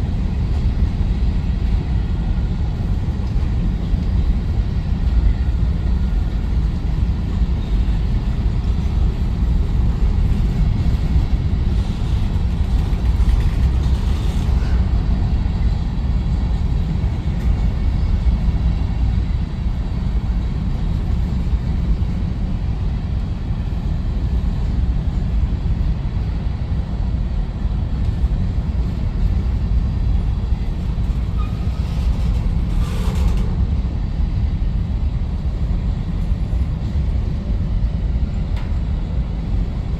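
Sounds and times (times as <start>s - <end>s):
freight train rumbling: 0.0s - 39.9s
wheel squeals: 31.2s - 33.6s.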